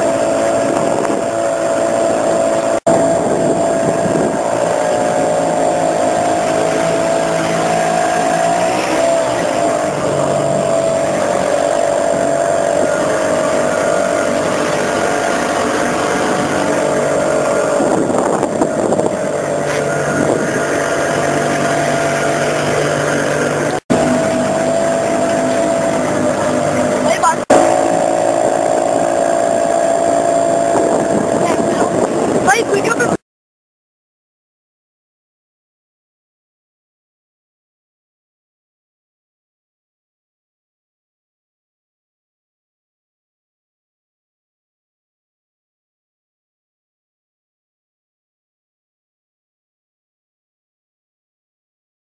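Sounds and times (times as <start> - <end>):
motorboat engine running: 0.0 - 33.2.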